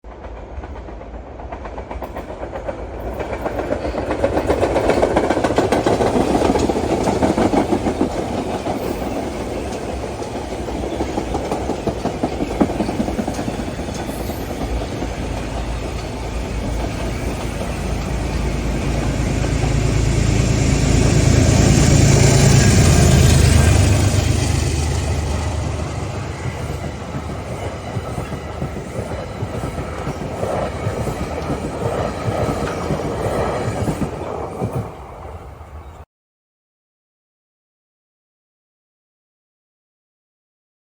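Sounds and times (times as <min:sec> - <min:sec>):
train wheels clattering on rails: 0:00.1 - 0:36.0
locomotive engine drone: 0:05.6 - 0:36.0.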